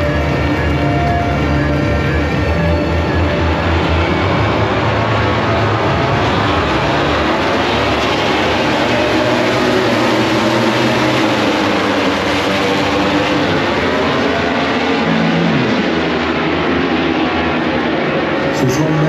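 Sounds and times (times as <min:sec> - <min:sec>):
many motorcycle engines revving: 0:00.0 - 0:19.0.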